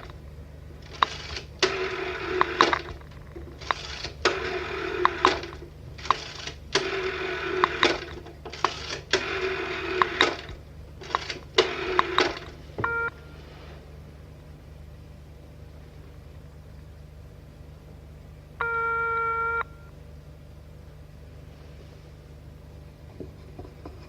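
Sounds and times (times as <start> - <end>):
low hum: 0.0 - 24.0
short single tone: 18.6 - 20.0
telephone bell ringing: 18.6 - 20.0.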